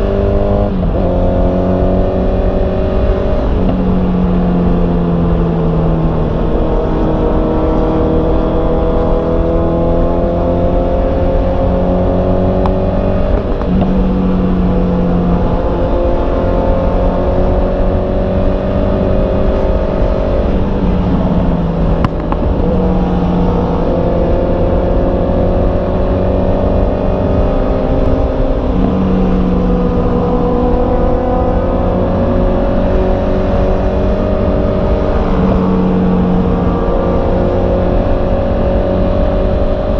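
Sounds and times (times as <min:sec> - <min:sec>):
low wind rumble: 0:00.0 - 0:39.9
motorcycle engine running: 0:11.6 - 0:39.9.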